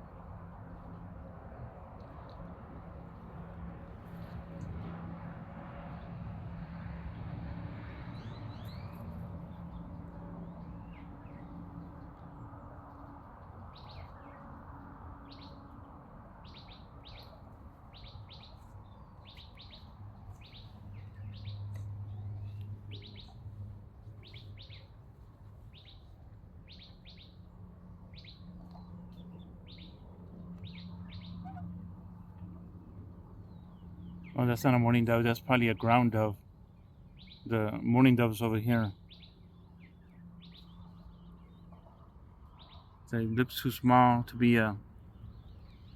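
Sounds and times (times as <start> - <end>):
outdoor background noise: 0.0 - 45.9.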